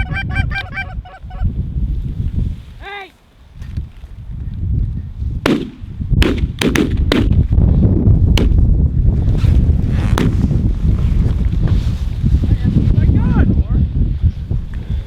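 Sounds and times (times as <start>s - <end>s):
wind buffeting microphone: 0.0s - 15.0s
shotgun shots: 5.5s - 7.4s.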